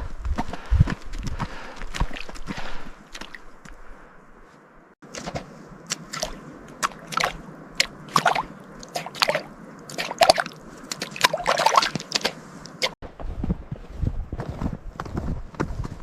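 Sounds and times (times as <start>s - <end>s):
horse hooves squelching through mud: 0.2s - 3.8s, 5.0s - 13.8s.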